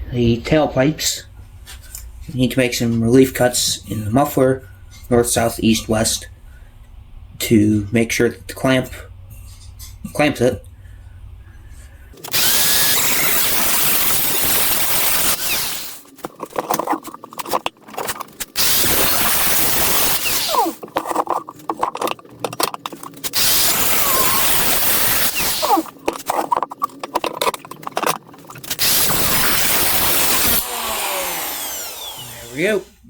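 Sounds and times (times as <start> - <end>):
power tool cutting steel pipe: 12.2 - 16.1, 18.5 - 21.2, 23.1 - 26.4, 28.6 - 33.0
metal scraping and clinking: 12.2 - 30.6.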